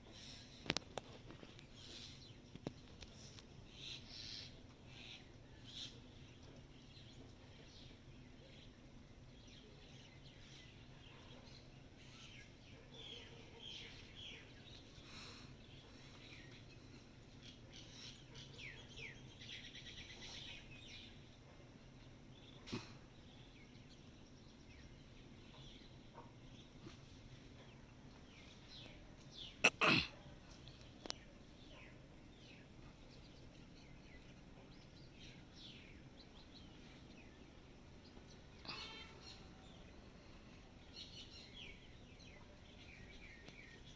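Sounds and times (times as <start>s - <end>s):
low background hum: 0.0s - 43.9s
small birds chirping: 0.0s - 43.9s.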